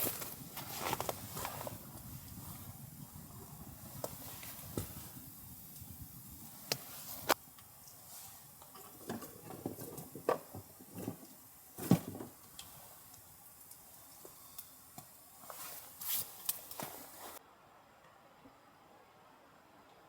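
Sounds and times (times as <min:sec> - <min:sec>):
camp gear being handled: 0:00.0 - 0:13.2, 0:15.3 - 0:17.4
background hiss: 0:00.0 - 0:20.0.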